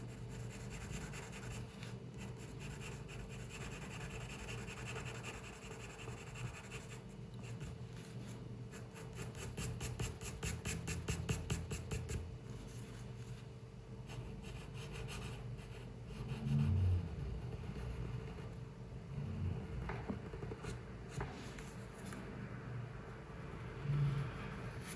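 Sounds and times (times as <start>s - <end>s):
drawing tool scratching on paper: 0.0s - 7.8s.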